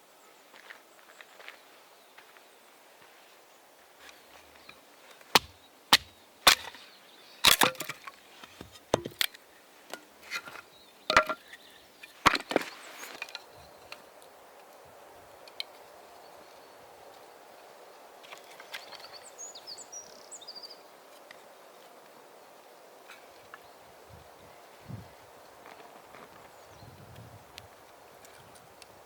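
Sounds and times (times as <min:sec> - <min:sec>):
dry firewood cracking and snapping: 0:05.3 - 0:06.8, 0:07.4 - 0:09.4.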